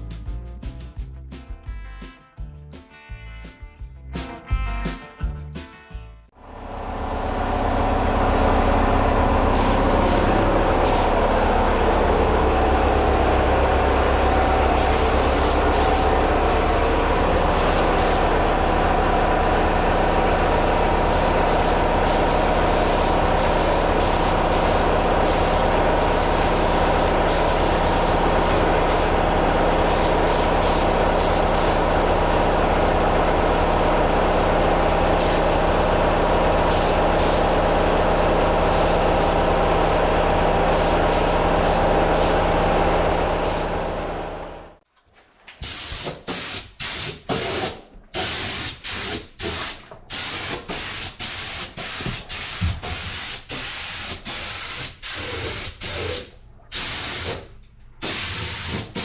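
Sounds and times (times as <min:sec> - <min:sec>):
air compressor running: 0:06.4 - 0:44.8, 0:45.6 - 0:59.0
spray gun hissing: 0:09.5 - 0:11.2, 0:14.7 - 0:16.2, 0:17.5 - 0:18.4, 0:21.1 - 0:29.2, 0:29.9 - 0:31.9, 0:35.2 - 0:35.5, 0:36.7 - 0:37.6, 0:38.7 - 0:40.1, 0:40.7 - 0:42.4, 0:43.4 - 0:43.7.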